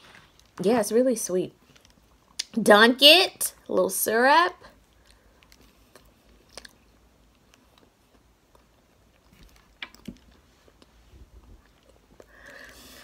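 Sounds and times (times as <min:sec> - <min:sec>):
mouth clicks and smacks: 0:01.8 - 0:02.6, 0:05.0 - 0:12.7
faint chewing: 0:04.7 - 0:13.0.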